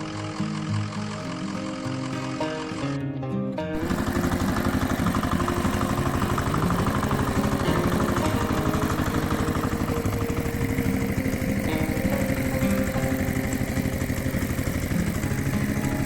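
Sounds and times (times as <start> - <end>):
tractor engine idling: 3.7 - 16.0.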